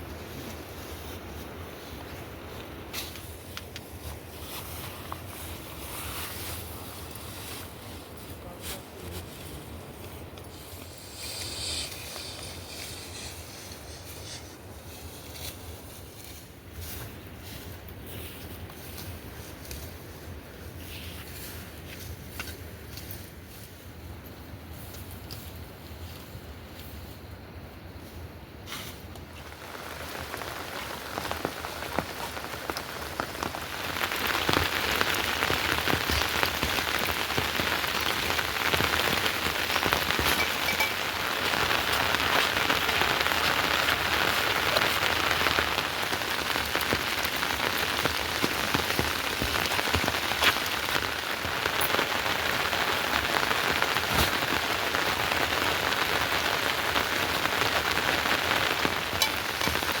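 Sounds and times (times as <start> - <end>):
heavy rain falling: 29.2 - 60.0
raindrops ticking: 29.2 - 60.0.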